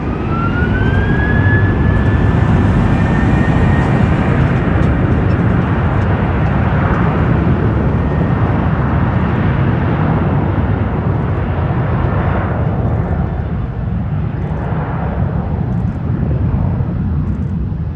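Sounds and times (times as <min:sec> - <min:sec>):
jet engines spooling up: 0:00.0 - 0:11.6.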